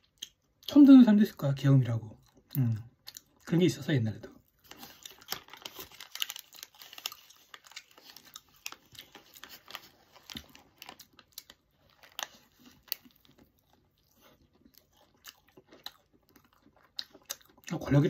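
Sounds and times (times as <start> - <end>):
person chewing: 0.0 - 0.8, 2.2 - 3.6, 4.4 - 18.0
paper wrapper crinkling: 4.5 - 14.4.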